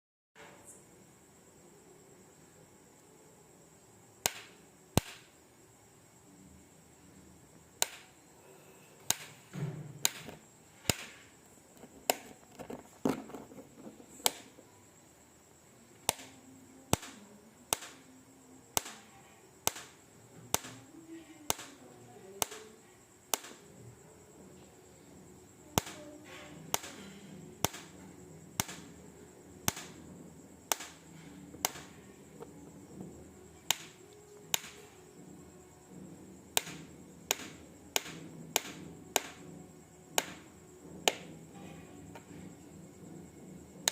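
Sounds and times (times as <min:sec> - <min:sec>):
insect clicking: 0:04.2 - 0:05.4, 0:07.8 - 0:08.2, 0:09.0 - 0:14.6, 0:15.9 - 0:18.1, 0:18.7 - 0:20.9, 0:21.5 - 0:21.8, 0:22.4 - 0:23.7, 0:25.8 - 0:29.0, 0:29.6 - 0:30.0, 0:30.6 - 0:32.5, 0:33.6 - 0:35.0, 0:36.5 - 0:39.5, 0:40.1 - 0:41.4.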